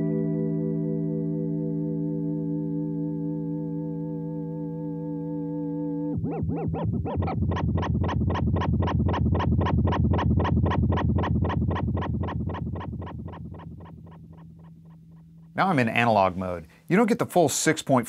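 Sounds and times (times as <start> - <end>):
electric guitar with wobbling delay repeats: 0.0 - 15.6.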